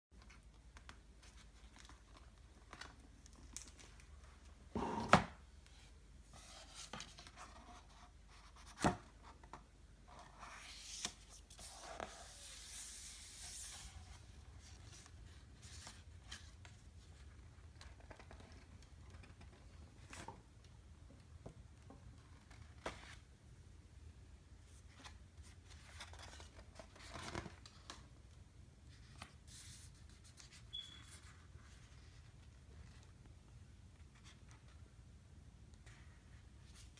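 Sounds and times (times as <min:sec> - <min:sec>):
book pages rustling and turning: 0:00.2 - 0:20.4, 0:21.9 - 0:23.3, 0:24.7 - 0:28.1, 0:28.9 - 0:33.3.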